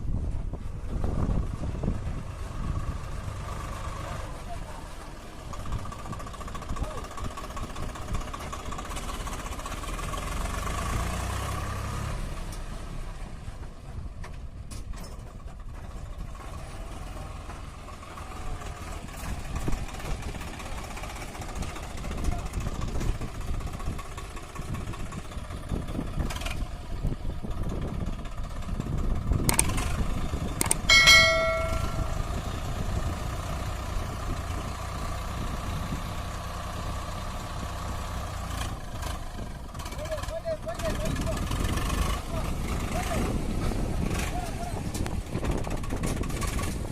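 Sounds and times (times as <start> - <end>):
tractor diesel engine running: 0.0 - 46.9
sharp clicks: 29.4 - 29.9, 30.6 - 30.9
brief pitched tone: 30.9 - 32.4.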